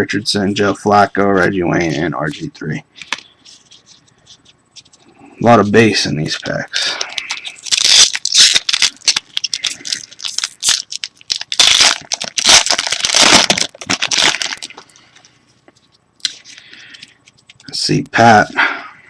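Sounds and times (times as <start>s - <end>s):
wrapper tearing and crinkling: 6.4s - 14.8s.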